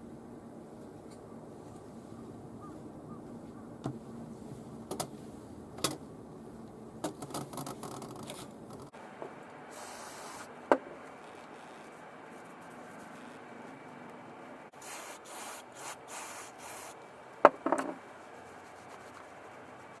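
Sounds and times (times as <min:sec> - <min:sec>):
short hiss: 0:09.7 - 0:10.6, 0:14.7 - 0:17.0.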